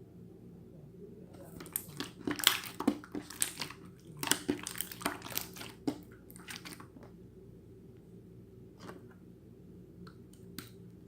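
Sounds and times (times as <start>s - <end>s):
slime squished by hand: 1.5s - 6.9s.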